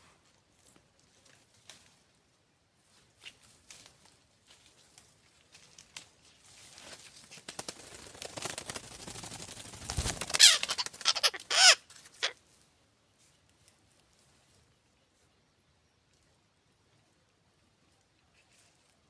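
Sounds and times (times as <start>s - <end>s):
bird squawking loudly: 10.3s - 12.4s.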